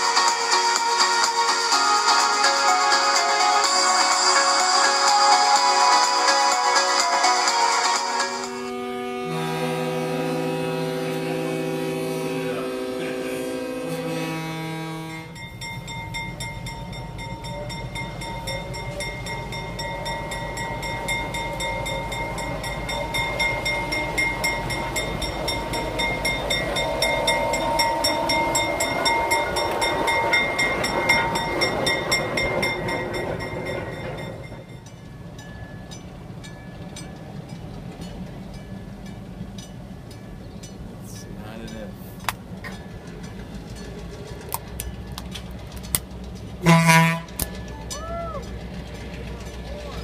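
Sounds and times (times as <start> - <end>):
diesel locomotive running by: 0.0 - 50.0
wheels clattering on rails: 9.4 - 50.0.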